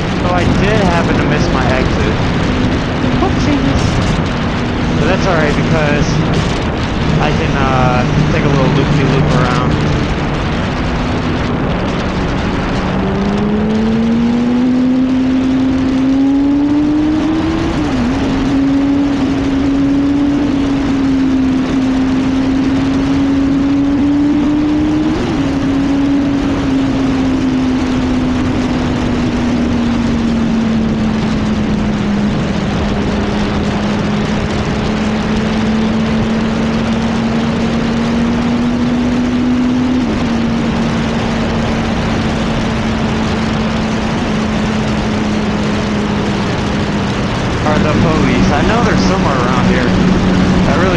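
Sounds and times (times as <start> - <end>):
motorcycle engine accelerating: 0.0 - 50.9
wind noise: 0.0 - 50.9.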